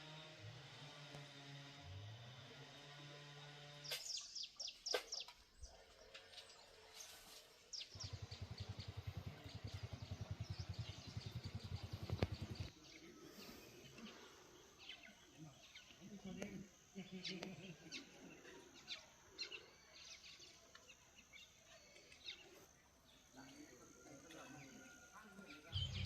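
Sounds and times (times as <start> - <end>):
birds chirping: 3.8 - 26.0
steady low hum: 7.9 - 26.0
fast low pulsing: 8.0 - 12.7.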